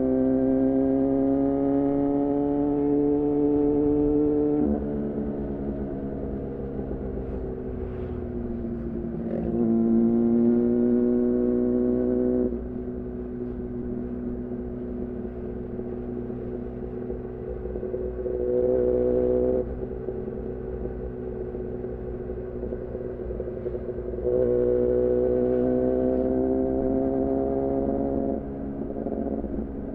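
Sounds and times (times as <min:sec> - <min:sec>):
motorcycle engine revving: 0:00.1 - 0:13.4, 0:22.3 - 0:29.7.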